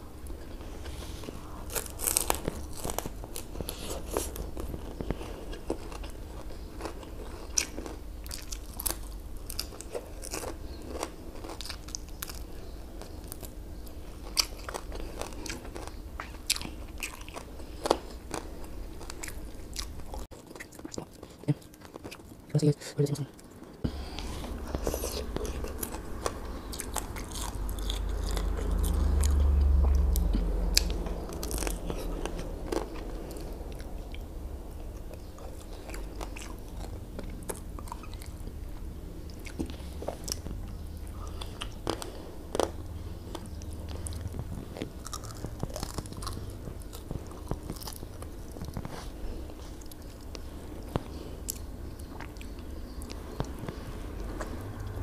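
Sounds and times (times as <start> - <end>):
chewing food: 0.0 - 55.0
low rumble: 23.9 - 55.0.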